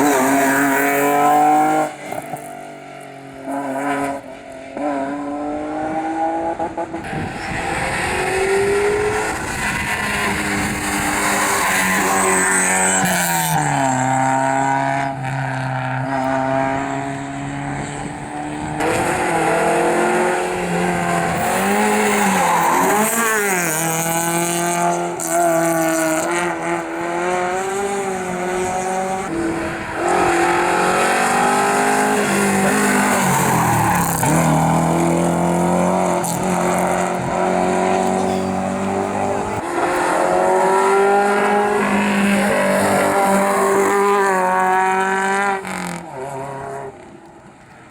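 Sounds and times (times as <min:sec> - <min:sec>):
rally car engines revving: 0:00.0 - 0:47.9
tyre squeal: 0:20.8 - 0:23.9, 0:38.0 - 0:39.2.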